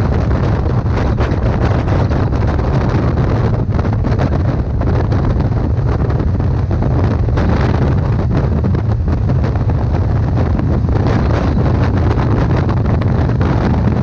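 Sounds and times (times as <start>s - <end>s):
motorcycle engine rumble: 0.0s - 14.0s
wind buffeting microphone: 0.0s - 14.0s.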